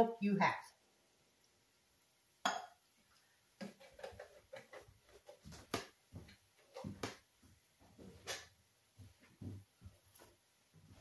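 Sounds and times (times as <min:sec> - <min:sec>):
spoon knocking and scraping pan: 0:03.6 - 0:05.8.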